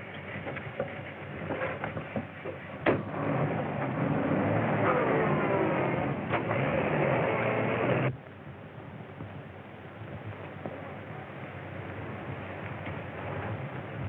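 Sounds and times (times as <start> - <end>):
car engine pulling away: 3.0 - 8.1.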